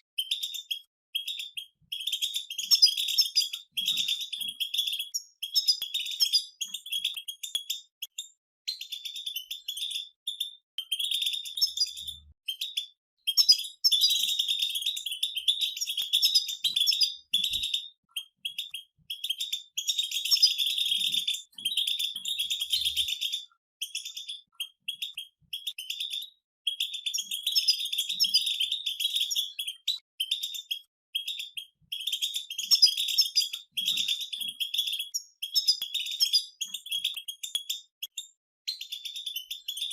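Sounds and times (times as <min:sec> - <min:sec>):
goldfinches twittering: 0:01.2 - 0:07.4, 0:08.8 - 0:26.2.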